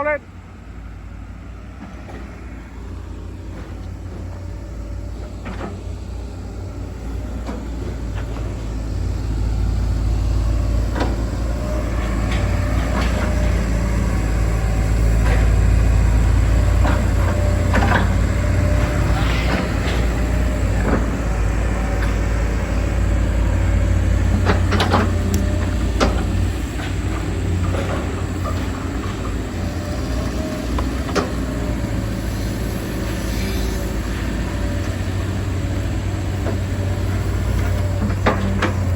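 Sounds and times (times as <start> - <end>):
excavator diesel engine: 0.0 - 38.9
short clanks and knocks: 24.2 - 29.4, 37.5 - 38.9.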